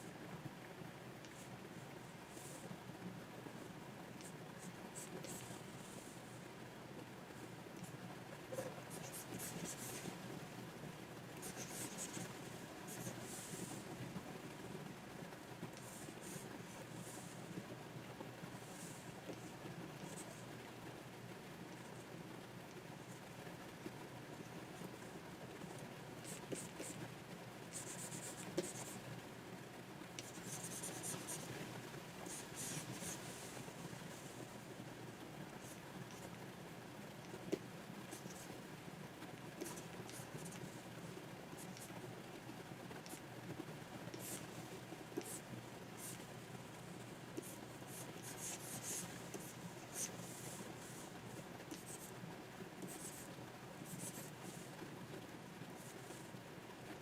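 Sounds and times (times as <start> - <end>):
pen scratching on tablet: 8.5 - 10.1, 11.4 - 13.8, 27.7 - 29.0, 30.2 - 31.6, 32.2 - 33.5, 37.3 - 38.5, 39.6 - 40.6, 44.1 - 44.4, 45.2 - 45.4, 47.4 - 51.1, 51.7 - 52.1, 52.8 - 54.6.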